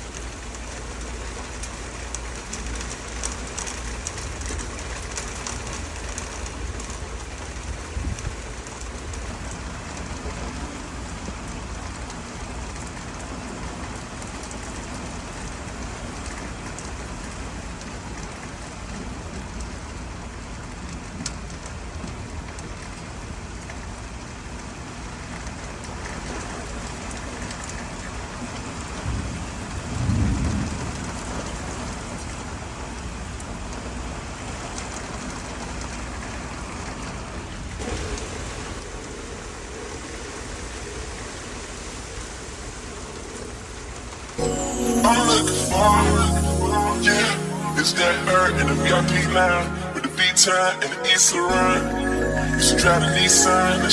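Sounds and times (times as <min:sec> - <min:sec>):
steady rain falling: 0:00.0 - 0:49.4
thunder rumble: 0:29.1 - 0:31.3.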